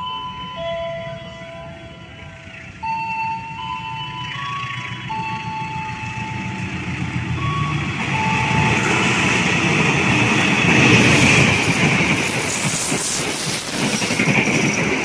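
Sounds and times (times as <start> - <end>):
passenger train rumble and rail noise: 0.0 - 15.0.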